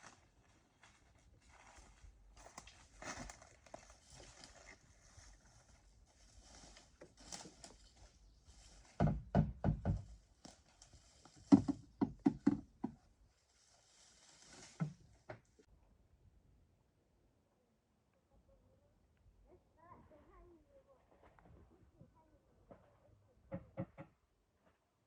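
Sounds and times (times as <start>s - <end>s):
dull knocks: 9.0s - 10.2s.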